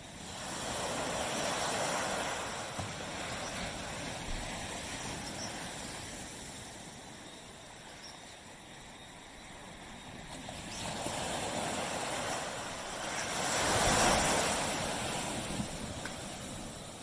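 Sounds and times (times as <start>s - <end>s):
waves washing on beach: 0.0s - 17.0s.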